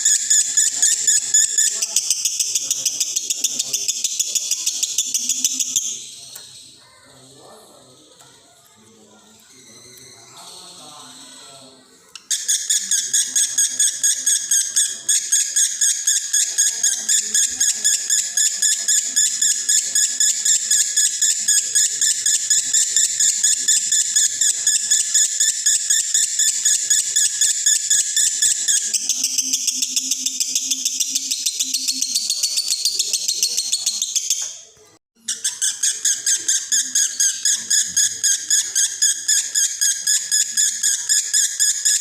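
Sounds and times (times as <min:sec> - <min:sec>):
lovebird singing a shrill trill: 0:00.0 - 0:06.5.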